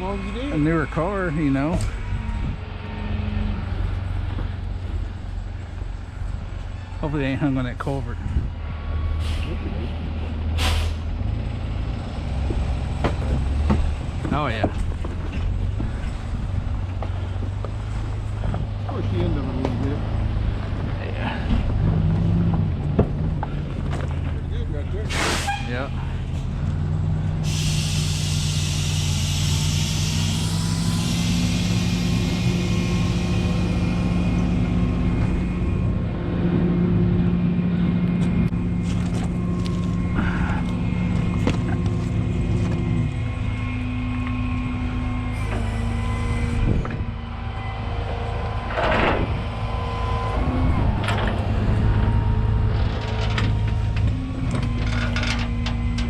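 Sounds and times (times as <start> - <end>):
truck engine running: 0.0 - 56.0
hiss: 25.1 - 25.6, 27.4 - 34.0.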